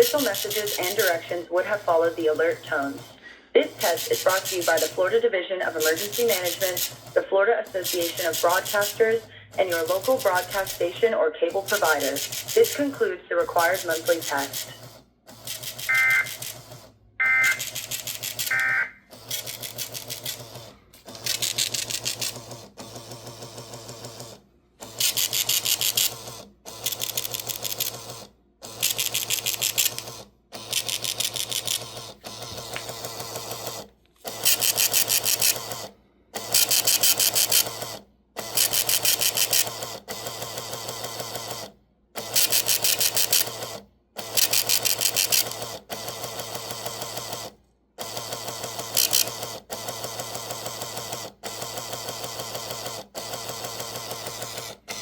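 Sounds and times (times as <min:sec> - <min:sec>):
rapid mechanical clicking: 0:00.0 - 0:01.4, 0:03.7 - 0:05.0, 0:05.7 - 0:10.8, 0:11.6 - 0:12.8, 0:13.6 - 0:55.0.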